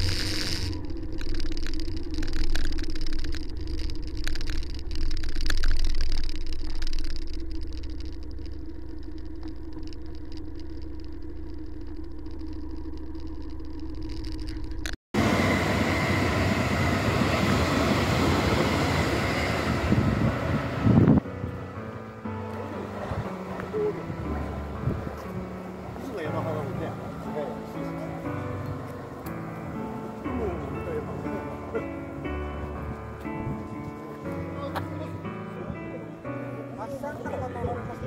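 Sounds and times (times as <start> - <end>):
small motorcycle engine running: 0.0 - 32.1
wind rushing over microphone: 15.3 - 21.7, 24.1 - 25.5, 32.8 - 33.9.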